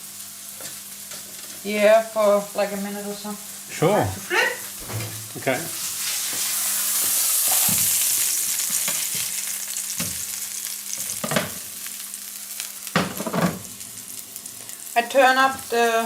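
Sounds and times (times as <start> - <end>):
patties sizzling in frying pan: 0.0 - 16.0.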